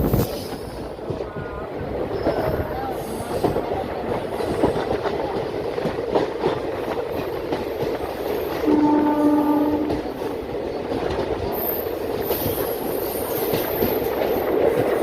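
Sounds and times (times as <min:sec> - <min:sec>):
train rumbling on track: 0:00.0 - 0:15.0
train horn: 0:08.6 - 0:10.3.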